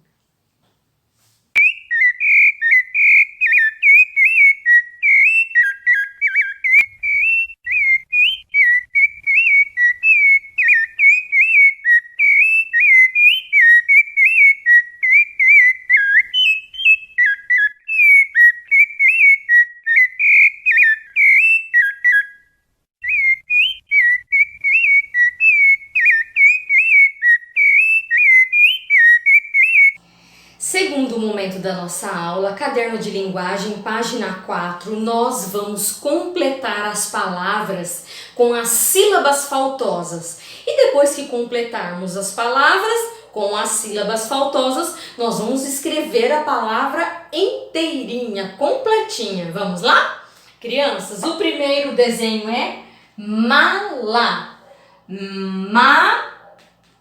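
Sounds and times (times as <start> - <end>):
bird-like warbling whistle: 1.6 - 30.0.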